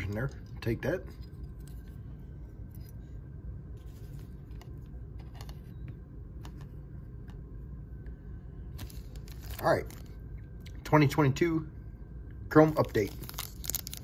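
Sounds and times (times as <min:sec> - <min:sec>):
low steady hum: 0:00.0 - 0:14.0
cards and wrappers handled: 0:08.7 - 0:10.2, 0:12.8 - 0:14.0.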